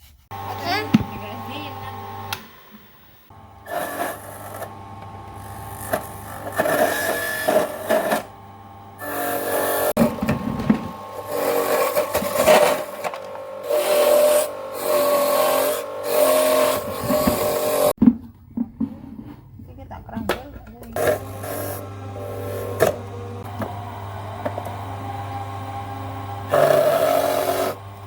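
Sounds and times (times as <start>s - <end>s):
small motor whirring: 3.3s - 8.3s, 10.9s - 18.0s, 21.0s - 28.0s.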